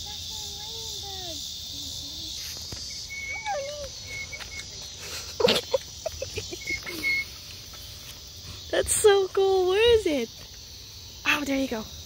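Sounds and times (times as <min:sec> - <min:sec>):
high-pitched insect chorus: 0:00.0 - 0:12.0
short chirps and calls: 0:02.3 - 0:05.2, 0:06.3 - 0:07.8.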